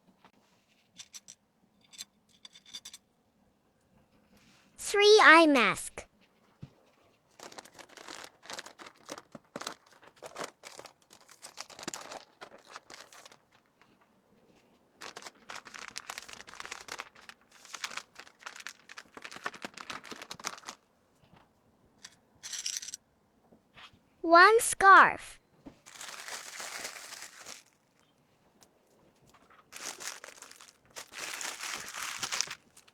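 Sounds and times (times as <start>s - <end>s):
plastic packaging crinkling: 7.3s - 13.9s, 15.0s - 20.8s, 25.8s - 28.0s, 29.4s - 32.9s.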